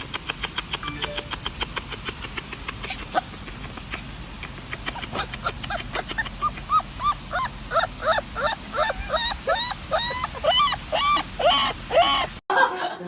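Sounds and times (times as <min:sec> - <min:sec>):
sharp clicks: 0:00.0 - 0:06.0
dog whimpering yips: 0:06.2 - 0:12.3.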